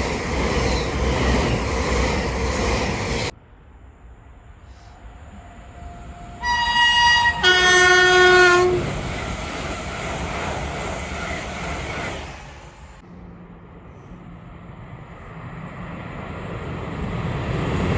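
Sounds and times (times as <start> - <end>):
train running noise: 0.0 - 3.4, 4.0 - 17.9
two-tone train horn: 5.3 - 8.9.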